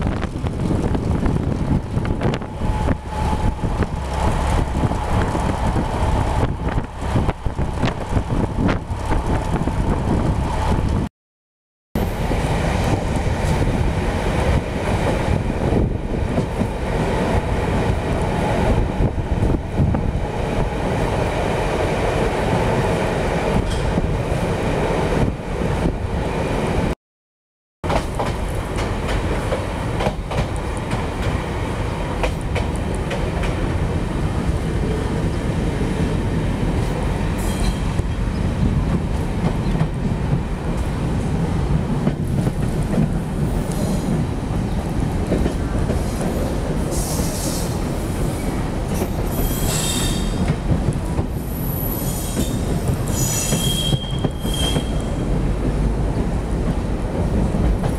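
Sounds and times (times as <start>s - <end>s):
train wheels rumbling on track: 0.0s - 11.1s, 12.0s - 27.0s, 27.8s - 57.9s
high wheel squeal: 37.4s - 38.4s, 49.3s - 50.4s, 51.4s - 55.2s.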